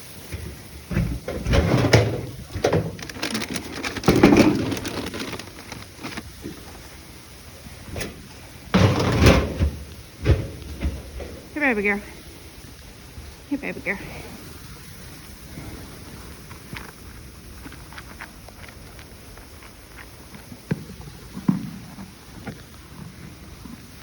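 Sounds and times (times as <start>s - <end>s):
rustling and knocking handling noise: 0.1s - 7.0s, 7.7s - 11.7s.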